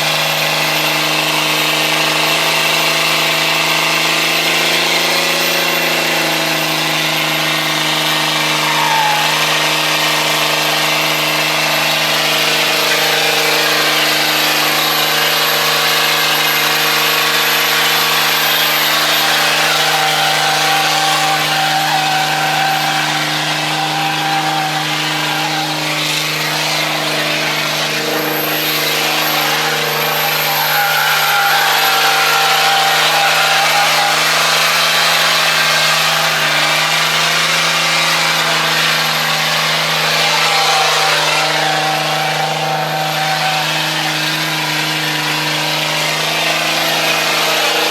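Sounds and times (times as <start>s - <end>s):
car engine at high revs: 0.0s - 47.9s.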